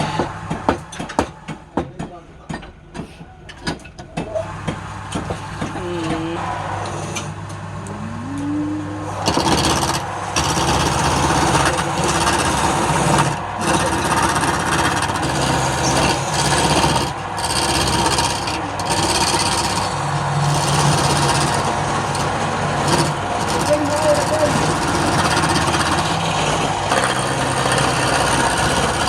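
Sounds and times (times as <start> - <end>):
wood lathe running: 4.5 - 29.0
tool scraping spinning wood: 9.0 - 29.0.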